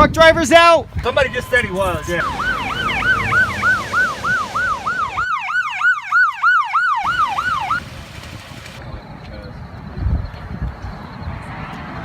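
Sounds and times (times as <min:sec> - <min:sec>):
emergency sirens yelping: 0:00.8 - 0:08.8.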